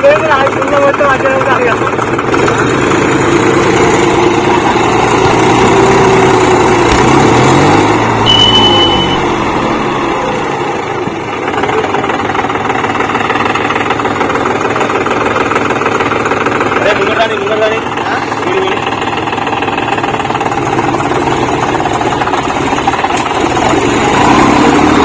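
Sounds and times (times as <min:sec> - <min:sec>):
tractor engines running hard: 0:00.0 - 0:25.0
short high-pitched tone: 0:08.2 - 0:10.0.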